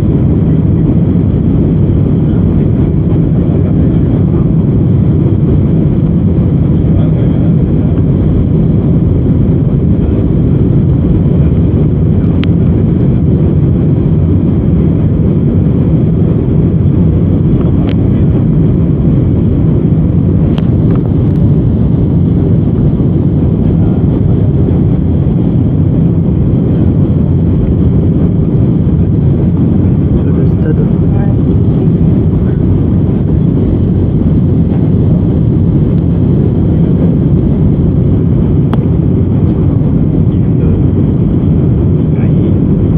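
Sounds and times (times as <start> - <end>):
aircraft cabin engine rumble: 0.0 - 42.9.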